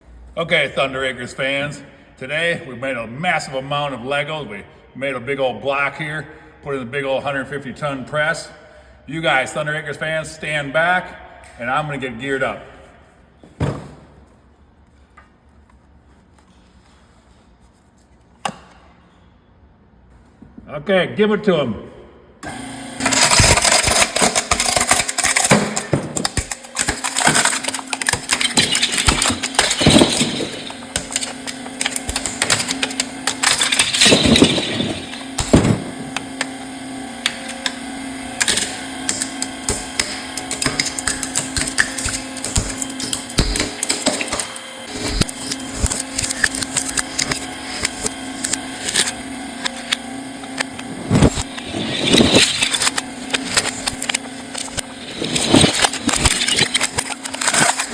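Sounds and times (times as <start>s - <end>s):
hydraulic press humming: 22.4s - 57.9s
plastic bricks cracking and snapping: 23.0s - 36.2s, 38.4s - 49.1s, 51.1s - 57.9s.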